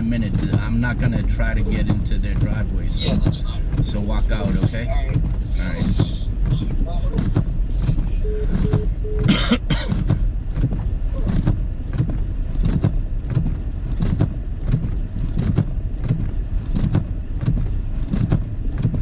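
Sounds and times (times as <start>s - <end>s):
engine and tyres rumbling: 0.0s - 19.0s
short beeps: 8.2s - 9.3s.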